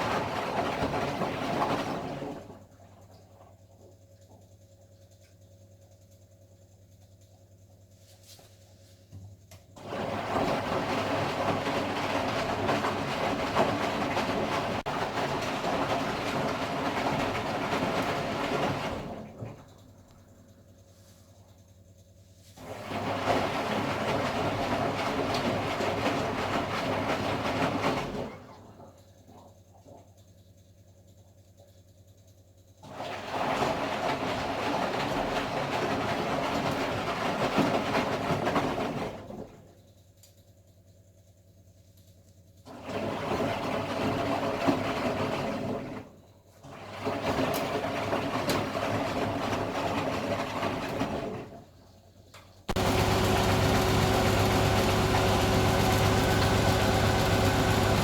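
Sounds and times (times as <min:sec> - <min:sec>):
washing machine drum rattling: 0:52.7 - 0:58.0.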